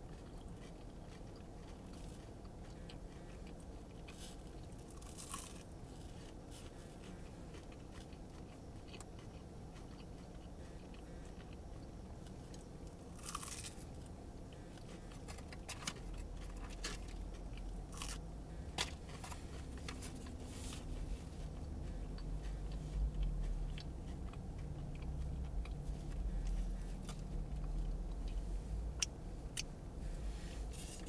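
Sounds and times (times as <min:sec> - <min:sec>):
crunchy biting and chewing: 0:00.0 - 0:31.0
low rumble: 0:16.0 - 0:31.0.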